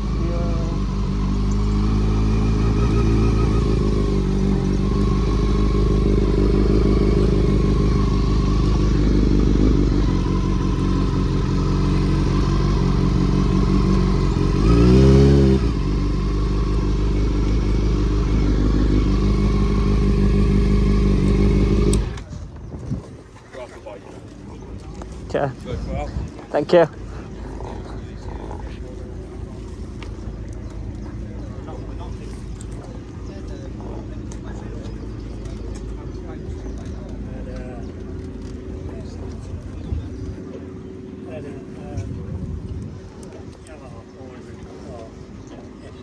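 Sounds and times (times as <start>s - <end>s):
engine revving: 0.0s - 22.4s
motorcycle engine running: 0.0s - 46.0s.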